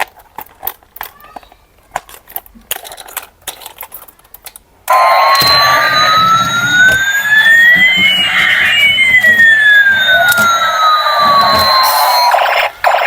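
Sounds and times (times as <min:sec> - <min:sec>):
electronic toy siren: 0:04.9 - 0:13.0.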